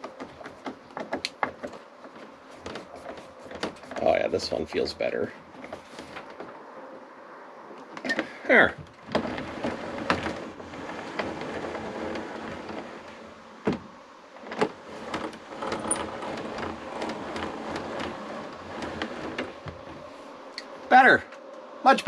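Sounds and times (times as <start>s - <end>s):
window glass grinding in door: 0.0s - 6.6s, 7.9s - 21.2s.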